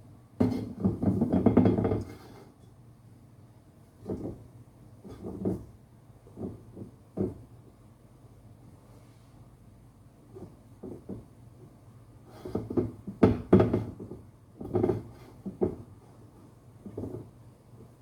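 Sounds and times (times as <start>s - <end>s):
knocks and clunks of objects: 0.4s - 2.1s, 4.0s - 4.5s, 5.1s - 7.5s, 10.4s - 11.4s, 12.4s - 16.0s, 16.8s - 17.4s.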